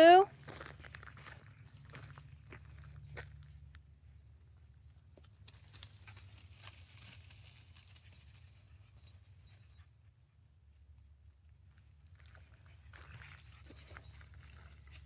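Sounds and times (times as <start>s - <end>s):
dog rustling in dry undergrowth: 5.5s - 9.0s.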